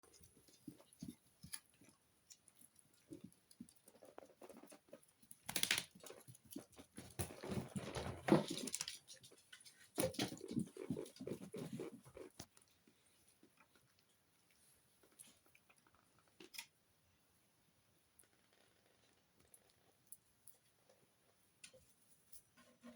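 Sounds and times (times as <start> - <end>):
puppy moving and mouthing things: 5.6 - 13.9.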